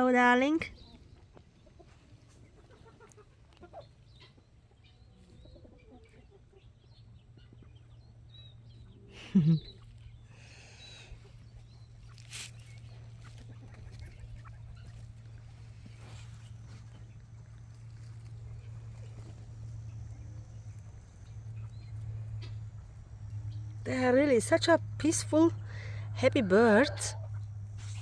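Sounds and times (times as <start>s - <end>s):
quails chirping and clucking: 0.6s - 24.1s, 25.6s - 28.0s
low steady hum: 6.6s - 28.0s.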